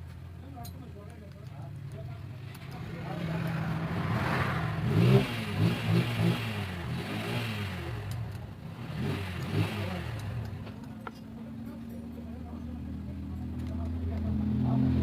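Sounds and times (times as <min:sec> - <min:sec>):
motorcycle engine revving: 0:02.2 - 0:11.7.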